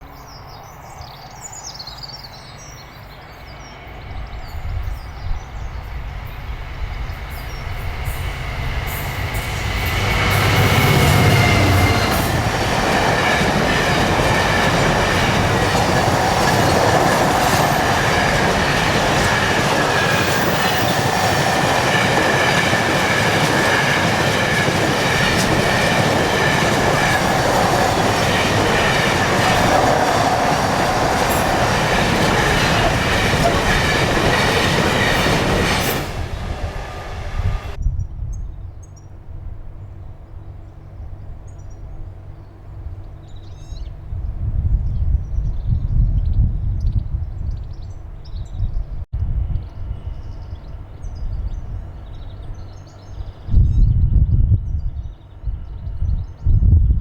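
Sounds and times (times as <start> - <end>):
faint birds chirping: 0.0 - 37.7
train wheel noise and rail clatter: 0.0 - 37.8
locomotive rumble: 3.3 - 37.8.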